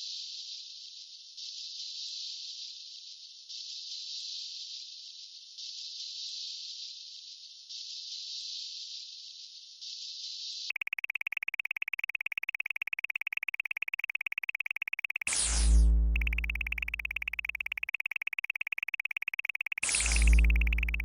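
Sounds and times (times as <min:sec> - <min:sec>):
electronic chirping pulse: 0:10.7 - 0:21.0.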